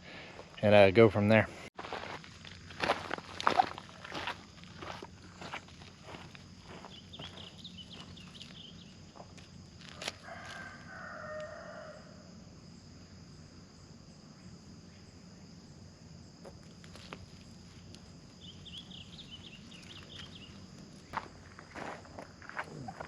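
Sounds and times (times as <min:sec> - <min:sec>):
small birds chirping: 0:05.4 - 0:09.3, 0:18.0 - 0:21.8
rooster crowing: 0:10.0 - 0:12.3.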